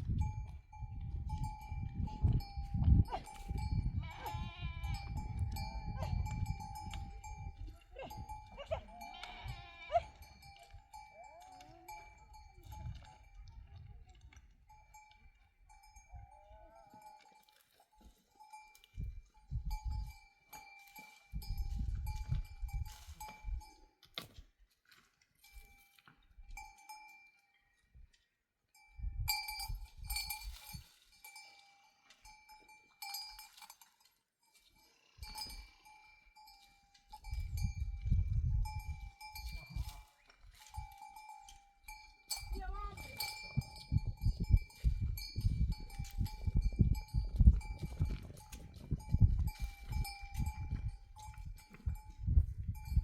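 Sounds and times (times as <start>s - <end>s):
livestock bells clinking: 0.0s - 13.8s, 14.4s - 24.0s, 25.4s - 27.7s, 28.7s - 53.0s.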